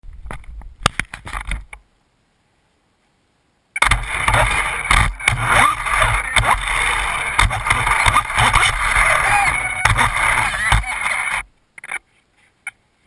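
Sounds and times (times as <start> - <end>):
sharp knocks: 3.8 - 8.8
drivetrain and tyre noise: 3.8 - 12.0
rc car motor whine: 4.1 - 11.5.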